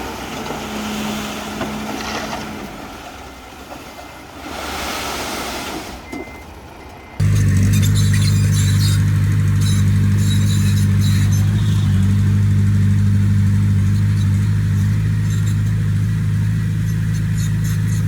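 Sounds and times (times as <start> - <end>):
diesel engine running: 7.0 - 18.0.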